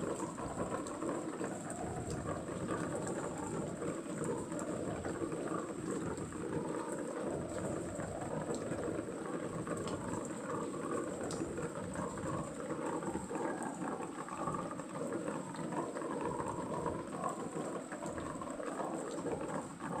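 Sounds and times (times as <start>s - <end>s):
steady rain patter: 0.0s - 20.0s.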